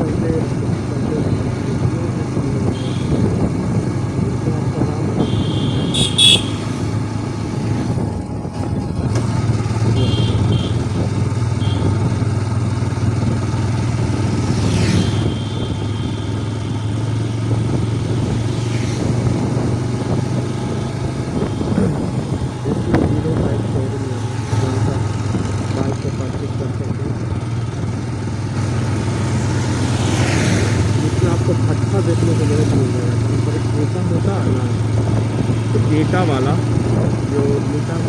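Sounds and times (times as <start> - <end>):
motorcycle engine running: 0.0 - 38.0
road traffic: 0.0 - 38.0.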